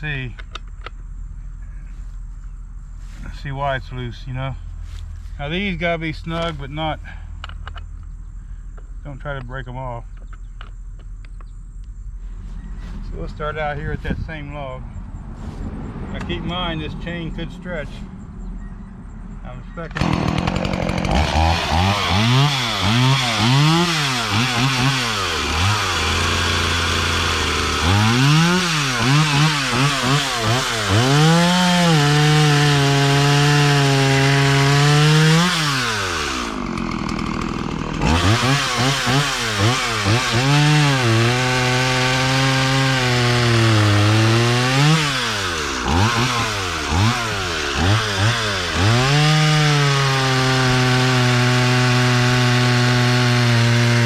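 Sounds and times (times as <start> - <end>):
chainsaw revving while cutting: 20.0 - 54.0.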